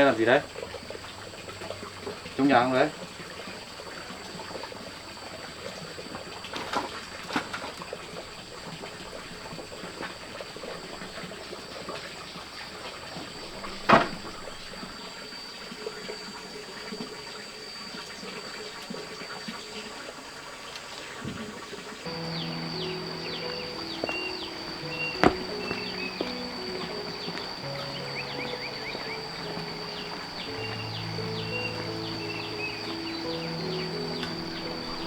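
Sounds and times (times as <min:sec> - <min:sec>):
sharp knocks: 0:22.2 - 0:27.5.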